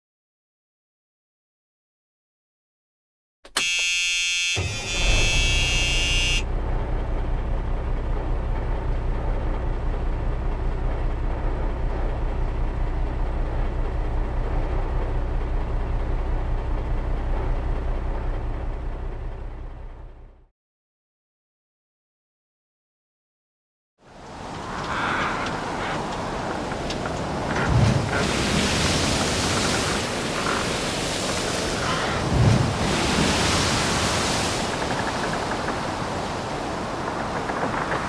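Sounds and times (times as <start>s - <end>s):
loud horn-like blast: 3.5s - 6.6s
low pulsing engine rumble: 4.6s - 20.5s.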